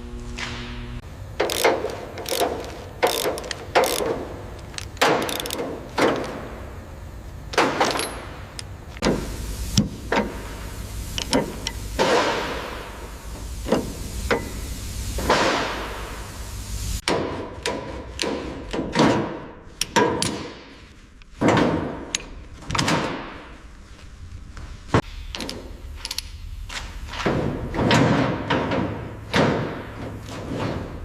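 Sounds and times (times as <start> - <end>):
knocks and thuds on car body: 21.4 - 22.1, 27.2 - 31.0.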